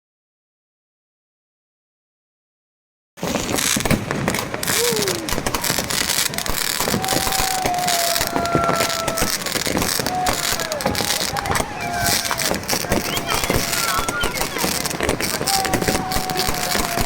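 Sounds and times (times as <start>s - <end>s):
fireworks bangs and crackles: 3.2s - 17.0s
long steady whistling tone: 4.8s - 17.0s
short falling whistle: 6.8s - 17.0s.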